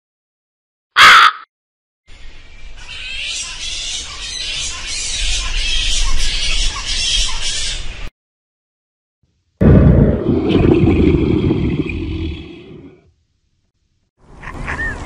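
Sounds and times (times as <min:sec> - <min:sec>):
crow cawing: 0:01.0 - 0:01.4.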